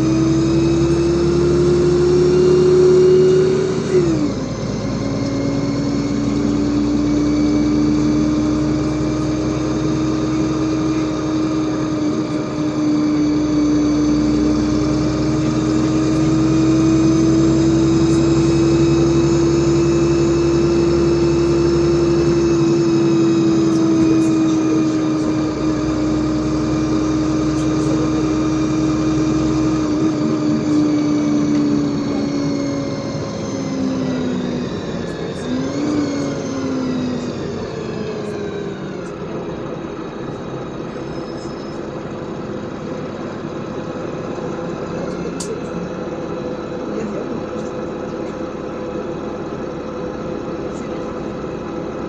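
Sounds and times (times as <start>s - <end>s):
bus drivetrain whine: 0.0s - 52.0s
bus engine rumble: 0.0s - 52.0s.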